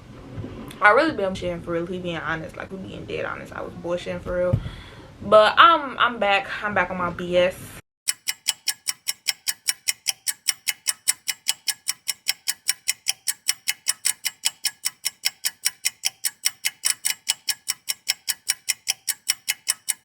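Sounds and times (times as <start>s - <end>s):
rapid clock ticking: 8.1s - 20.0s.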